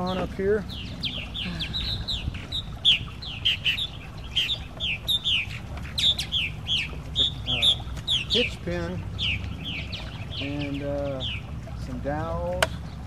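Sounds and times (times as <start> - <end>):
birds chirping: 0.0 - 13.0
low steady rumble: 0.0 - 13.0.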